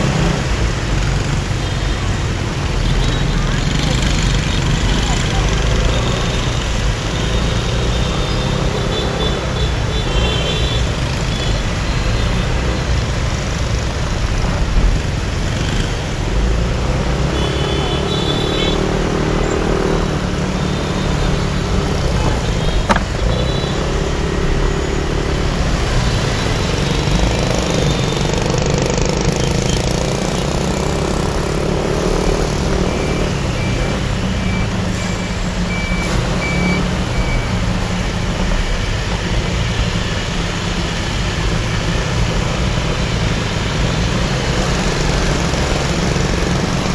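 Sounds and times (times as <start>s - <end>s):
engines and road noise rumbling: 0.0s - 46.9s
vehicle horn tones: 17.3s - 18.9s.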